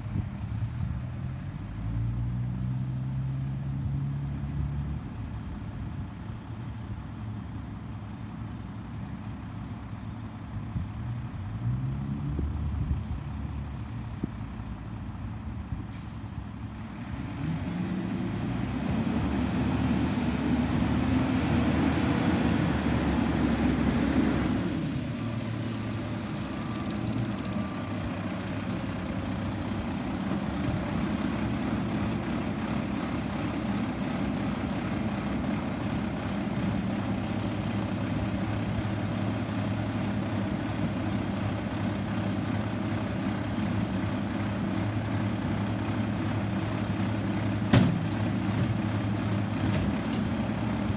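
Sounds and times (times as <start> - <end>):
garbage truck engine idling: 19.9 - 50.9.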